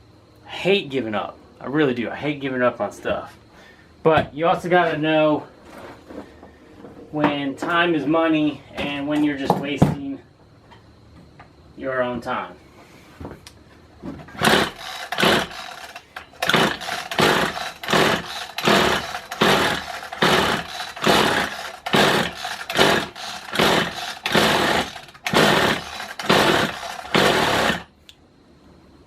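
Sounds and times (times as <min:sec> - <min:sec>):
recoil starter pulls: 0:14.3 - 0:27.9.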